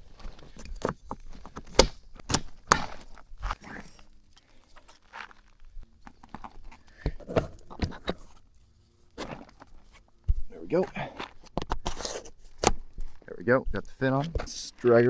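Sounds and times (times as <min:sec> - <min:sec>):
sharp clicks and knocks: 0:00.0 - 0:03.6
soft knocks and rustling: 0:00.0 - 0:15.0.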